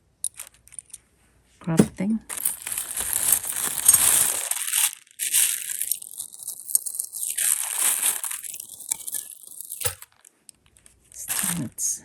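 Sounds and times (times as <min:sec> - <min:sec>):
packaging crinkling: 0:02.3 - 0:11.8.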